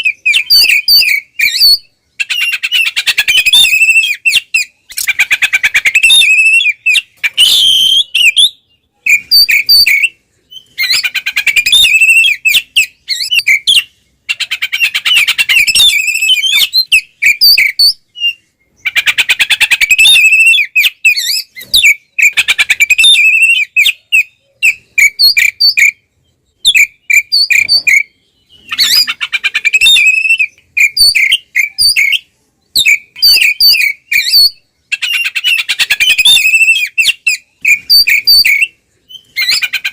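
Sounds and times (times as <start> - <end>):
bird whistling and rattling trills: 0.0 - 26.0, 26.6 - 39.9.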